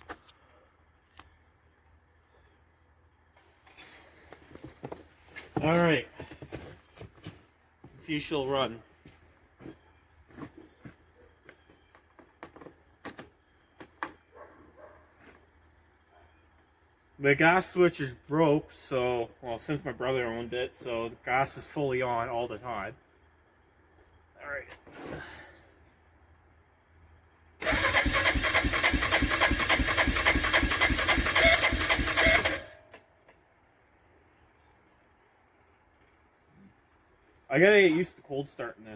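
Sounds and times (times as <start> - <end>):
engine cranking over: 27.6 - 32.8.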